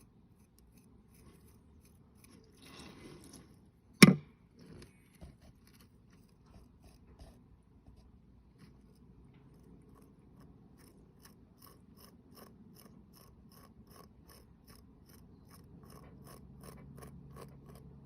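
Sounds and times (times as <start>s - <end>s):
sharp knock: 4.0s - 4.2s.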